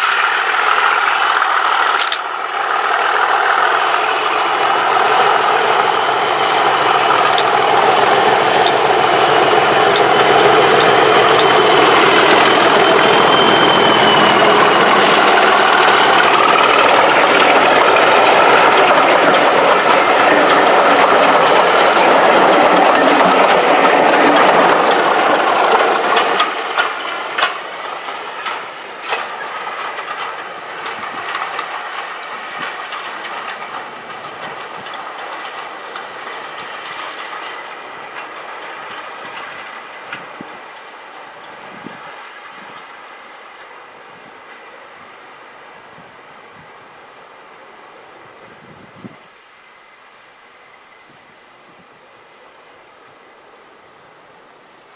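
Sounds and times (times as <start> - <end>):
wheels clicking over rail joints: 0.0 - 43.6
diesel locomotive engine working: 0.0 - 51.4
train rolling: 0.0 - 51.4.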